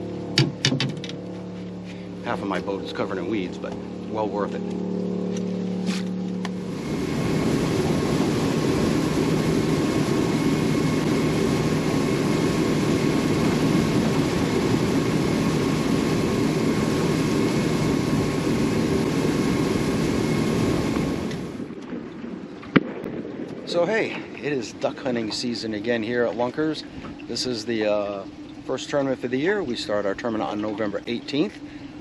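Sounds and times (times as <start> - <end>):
outboard motor running at speed: 0.0 - 22.0, 23.9 - 32.0
water rushing: 2.1 - 22.7.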